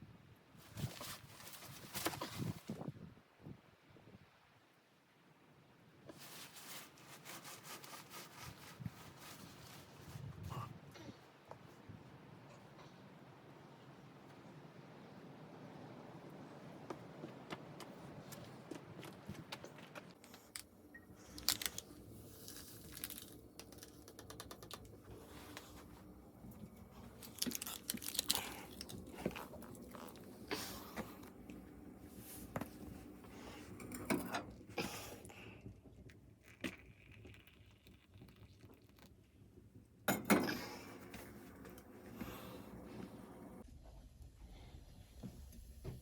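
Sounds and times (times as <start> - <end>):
crinkling rustles: 0.6 - 2.8, 6.1 - 10.4, 17.3 - 35.6.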